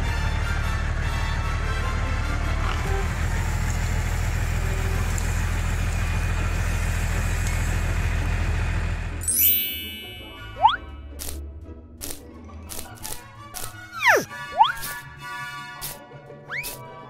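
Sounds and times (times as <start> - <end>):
small motor humming: 2.8 - 8.8
bright chiming sound effect: 9.2 - 11.0.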